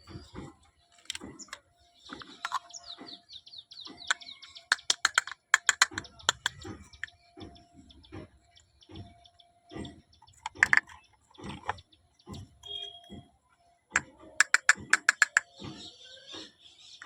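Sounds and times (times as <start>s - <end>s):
sharp clicks: 3.8s - 13.2s, 13.9s - 15.8s
toy pieces tapping and clicking: 4.0s - 7.2s, 10.2s - 11.8s, 14.0s - 15.6s.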